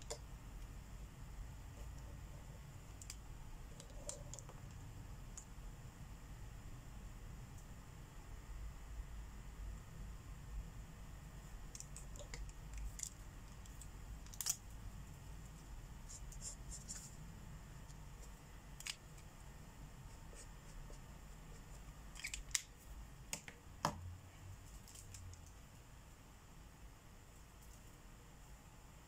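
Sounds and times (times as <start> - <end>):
markers clicking and tapping: 11.7 - 14.6.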